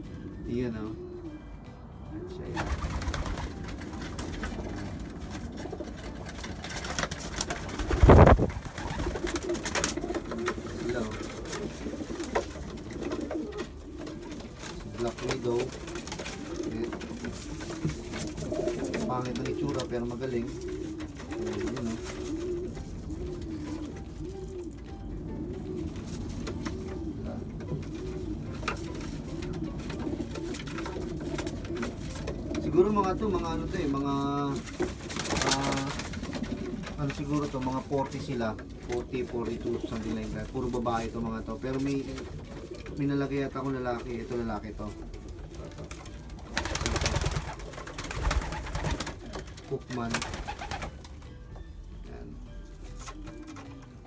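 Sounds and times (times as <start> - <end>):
pigeons cooing: 0.0 - 54.0
loud burst of rustling: 7.5 - 9.3.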